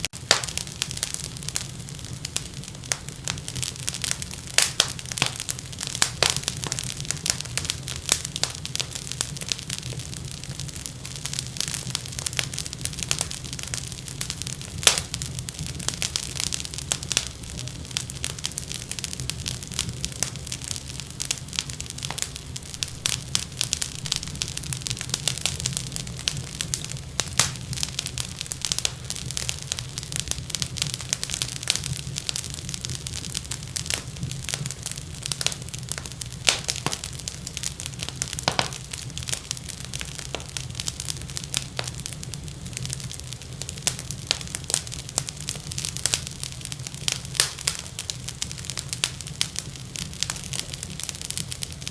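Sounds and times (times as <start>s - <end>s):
wood fire crackling: 0.0s - 51.9s.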